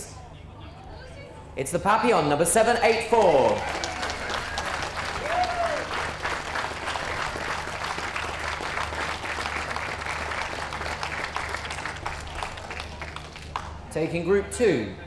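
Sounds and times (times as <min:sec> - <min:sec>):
audience applauding: 0:02.6 - 0:13.9.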